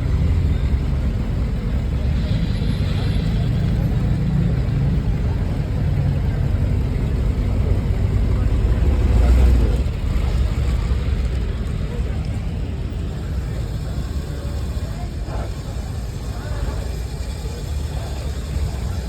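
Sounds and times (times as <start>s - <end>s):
car engine rumbling: 0.0s - 19.0s
faint voices: 0.0s - 19.0s.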